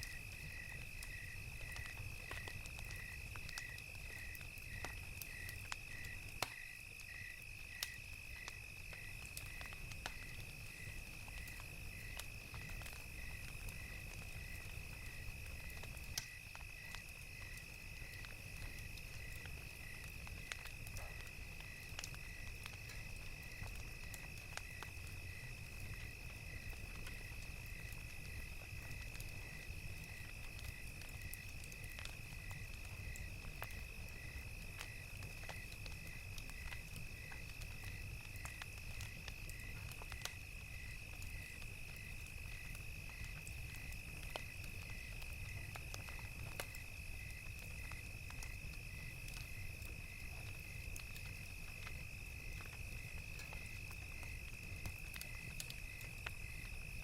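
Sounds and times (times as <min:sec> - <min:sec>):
cricket chirping: 0:00.0 - 0:57.0
wood fire crackling: 0:00.0 - 0:57.0.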